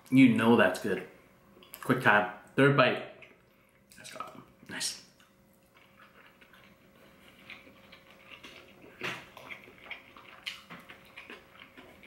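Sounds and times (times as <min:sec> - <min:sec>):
person chewing with lip smacks: 0:05.2 - 0:12.0.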